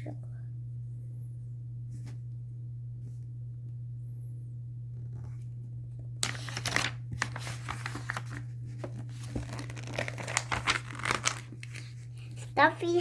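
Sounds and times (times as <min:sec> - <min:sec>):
book pages rustling: 0:06.2 - 0:13.0.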